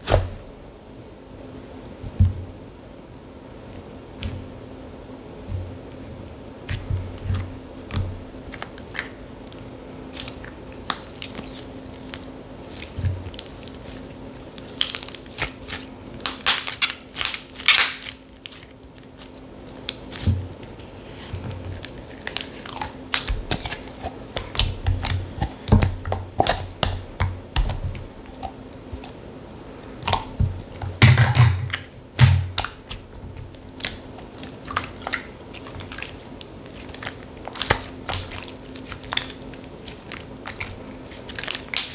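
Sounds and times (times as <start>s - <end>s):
slime squished by hand: 30.0s - 41.9s.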